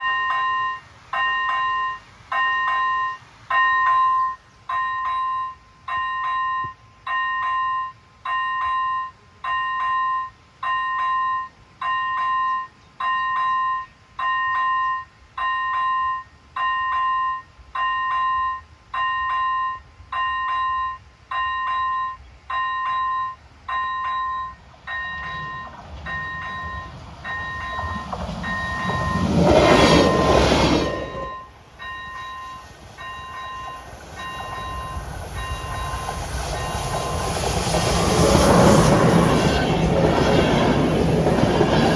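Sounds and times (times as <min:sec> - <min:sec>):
train rumbling: 0:17.5 - 0:41.9.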